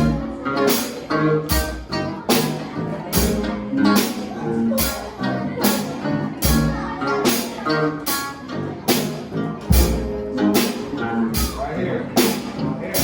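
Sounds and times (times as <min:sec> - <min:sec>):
guitar: 0:00.0 - 0:13.0
sharp drum hits: 0:09.7 - 0:10.7.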